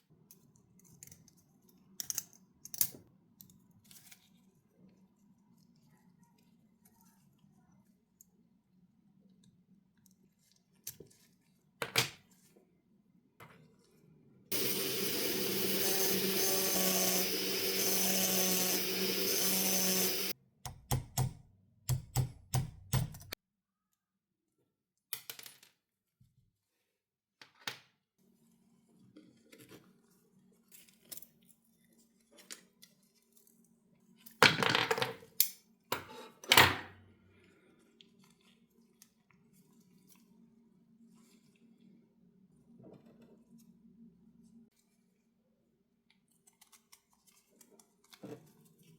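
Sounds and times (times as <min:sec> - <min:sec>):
power tool running: 0:14.5 - 0:20.3.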